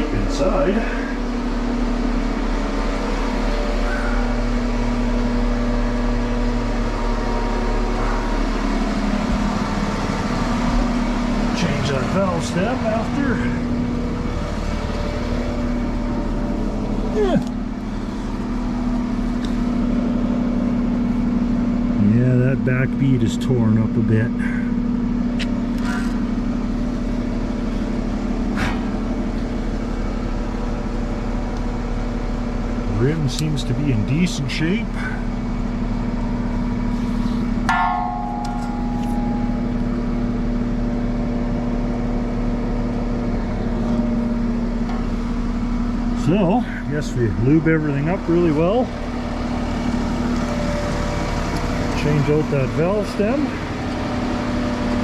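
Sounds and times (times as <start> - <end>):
engine idling: 0.0 - 55.0
sharp metal clang: 37.7 - 39.7.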